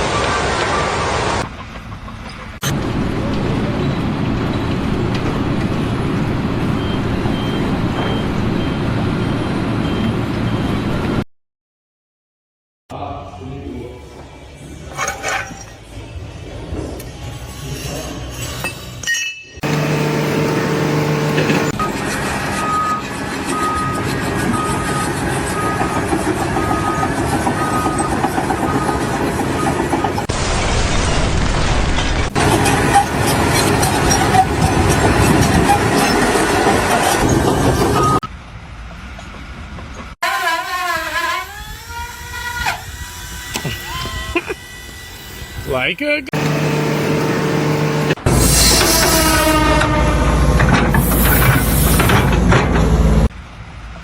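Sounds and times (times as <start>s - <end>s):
heavy vehicle engine rumbling: 1.4s - 11.2s, 19.6s - 30.3s, 46.3s - 54.0s
backup alarm beeping: 6.8s - 10.8s, 19.6s - 22.0s
engine running: 19.6s - 28.1s, 46.3s - 49.1s.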